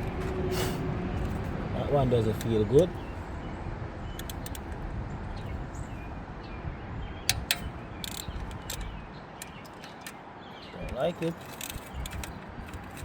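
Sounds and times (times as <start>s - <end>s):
steady low rumble: 0.0s - 9.9s
socket wrench scraping: 4.2s - 4.7s, 7.3s - 10.2s, 10.9s - 13.0s
socket wrench clicking: 4.2s - 4.8s, 7.3s - 10.2s, 10.9s - 13.0s.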